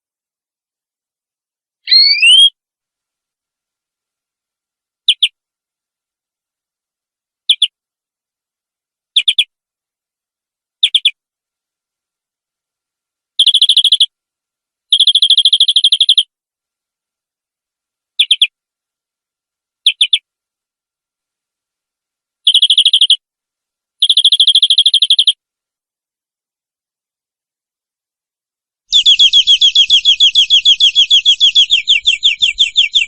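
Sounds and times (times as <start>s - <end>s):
canary singing rolling trills: 1.9s - 2.6s, 5.0s - 5.4s, 7.4s - 7.8s, 10.8s - 11.2s, 14.9s - 16.3s, 18.2s - 18.6s, 19.8s - 20.3s, 22.4s - 23.2s, 24.0s - 25.4s, 28.9s - 33.0s.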